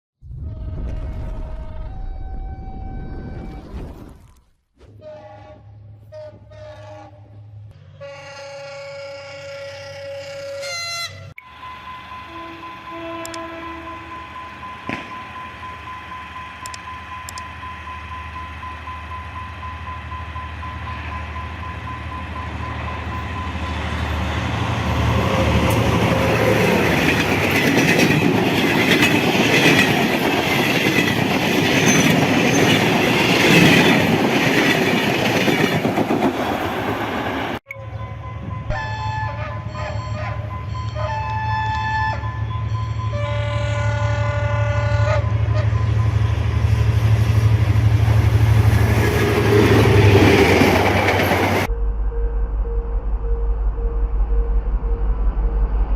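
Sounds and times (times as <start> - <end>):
stacked steady tones: 11.4 - 35.7
train passing at speed: 11.4 - 55.9.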